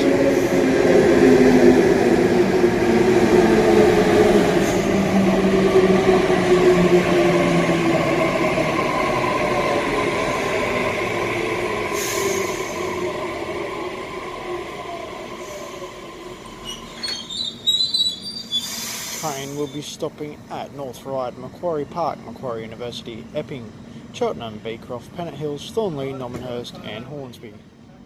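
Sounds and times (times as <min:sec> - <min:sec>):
high-pitched squeals: 0:15.0 - 0:18.8.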